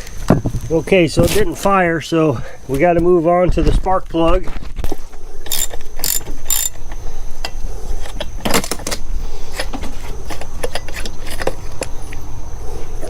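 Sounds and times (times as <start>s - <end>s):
metallic hand tool clicks: 5.5s - 6.8s.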